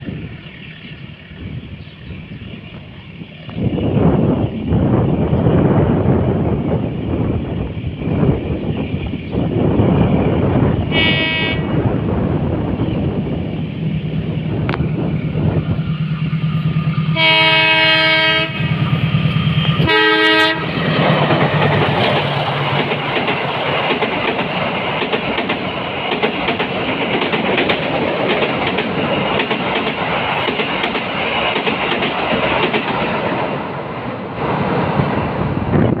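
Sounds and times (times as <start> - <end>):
train horn blasts: 10.9 - 11.8, 17.1 - 18.9, 19.8 - 20.8
train wheels clattering on rails: 12.8 - 35.4.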